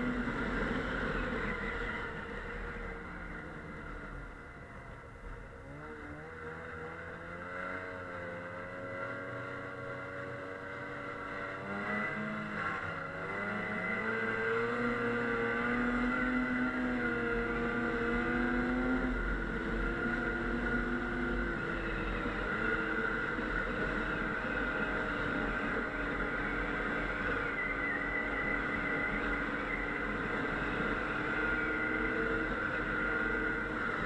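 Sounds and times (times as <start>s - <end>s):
snowmobile engine running: 0.0s - 34.0s.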